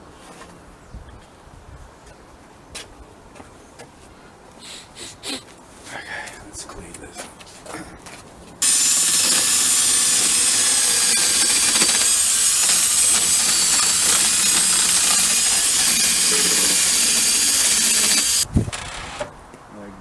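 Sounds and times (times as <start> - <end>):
compressed air hissing: 4.6 - 5.4, 8.6 - 18.4.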